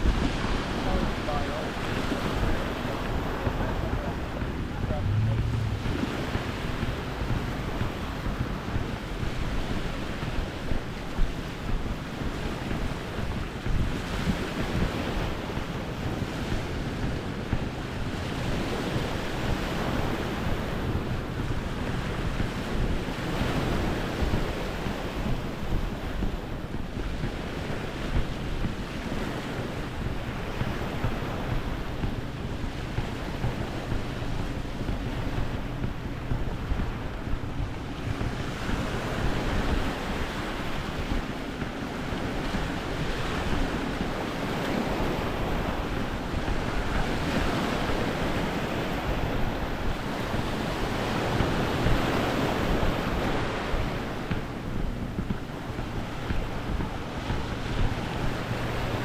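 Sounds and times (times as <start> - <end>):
small waves washing onto beach: 0.0 - 59.0
wind rumbling on microphone: 0.0 - 59.0.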